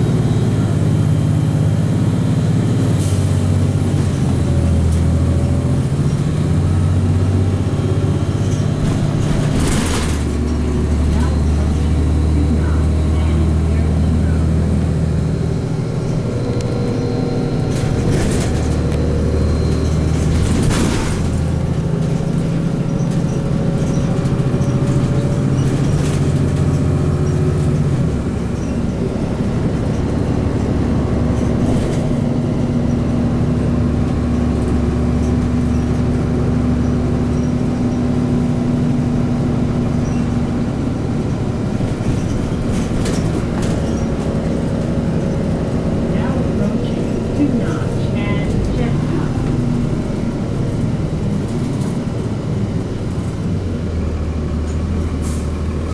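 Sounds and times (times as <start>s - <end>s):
bus engine droning: 0.0s - 55.9s
rattles and clatters: 8.1s - 11.9s, 15.9s - 39.0s, 39.6s - 53.6s.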